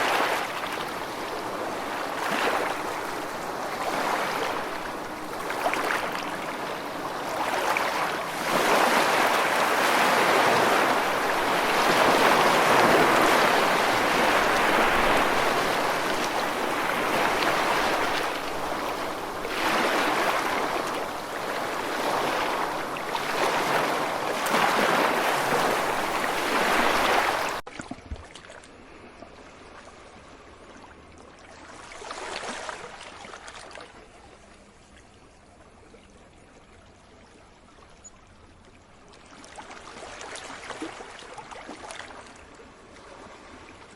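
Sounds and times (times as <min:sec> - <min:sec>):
sea waves breaking ashore: 0:00.0 - 0:27.6
dull wash of water: 0:00.0 - 0:37.8, 0:38.4 - 0:43.9.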